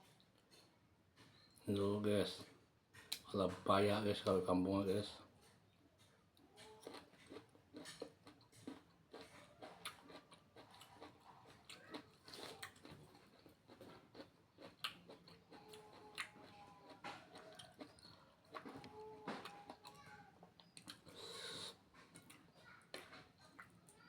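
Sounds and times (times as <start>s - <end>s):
close-up chewing: 6.5s - 24.0s.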